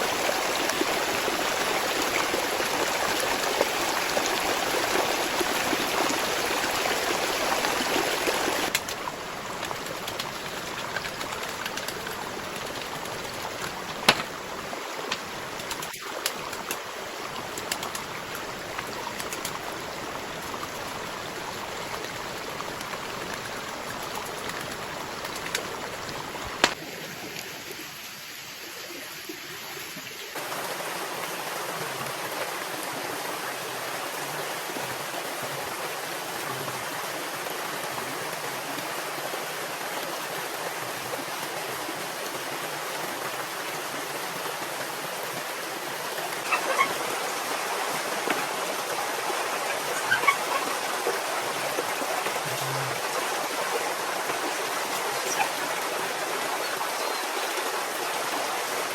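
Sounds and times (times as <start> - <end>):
running water rushing: 0.0 - 58.9
sharp clicks: 26.6 - 26.8.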